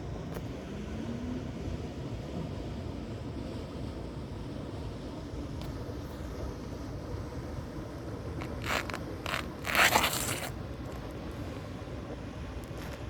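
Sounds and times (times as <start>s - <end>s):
scraping sounds: 8.4s - 11.0s.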